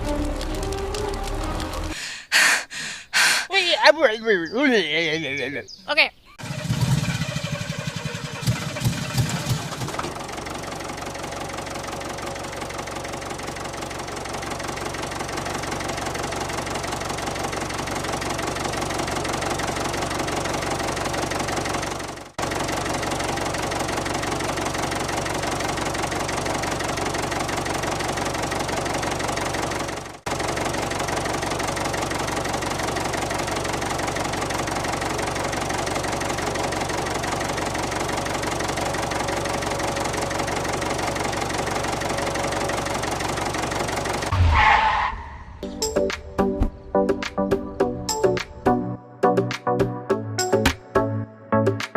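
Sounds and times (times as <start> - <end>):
small engine chugging: 6.4 - 44.3.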